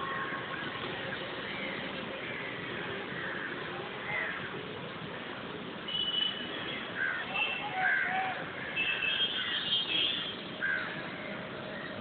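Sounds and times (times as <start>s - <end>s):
birds calling: 6.9s - 12.0s.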